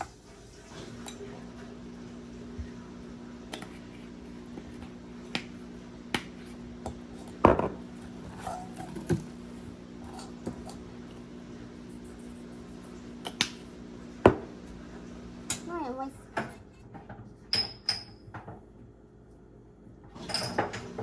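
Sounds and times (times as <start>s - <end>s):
dishes clinking and knocking: 6.9s - 9.3s, 16.4s - 18.6s, 20.2s - 21.0s.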